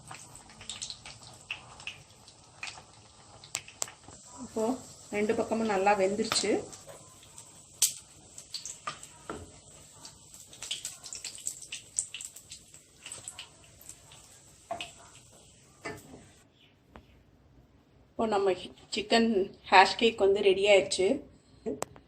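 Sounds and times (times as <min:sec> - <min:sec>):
oil sizzling in a pan: 0:00.0 - 0:16.4.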